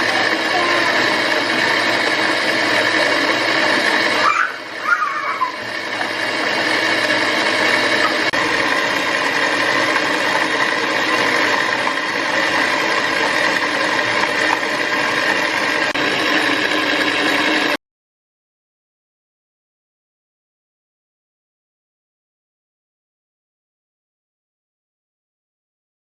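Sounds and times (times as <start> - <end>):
small electric motor humming: 0.0 - 17.8.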